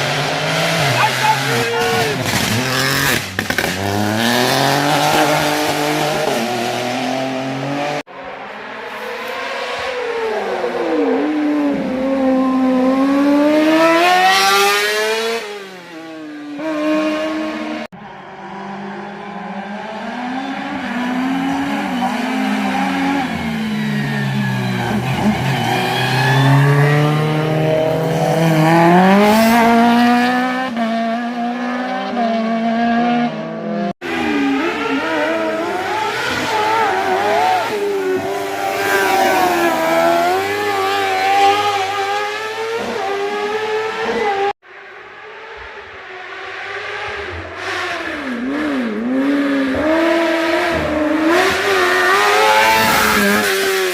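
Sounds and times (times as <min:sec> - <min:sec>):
car engines revving hard: 0:00.0 - 0:53.9.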